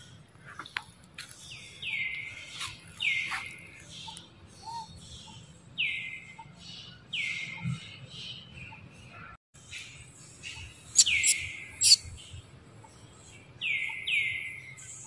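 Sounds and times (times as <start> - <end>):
forest bird calling: 1.4 - 9.3, 10.5 - 12.1.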